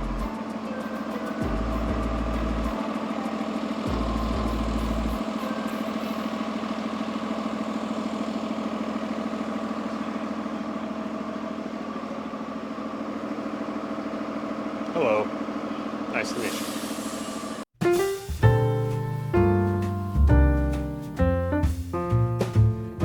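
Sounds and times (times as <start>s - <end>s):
diesel engine idling: 0.0s - 17.7s.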